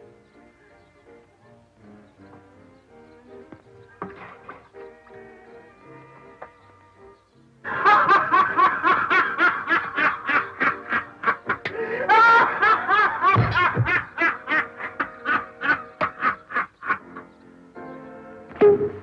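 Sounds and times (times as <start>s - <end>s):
person laughing hard: 7.7s - 17.2s.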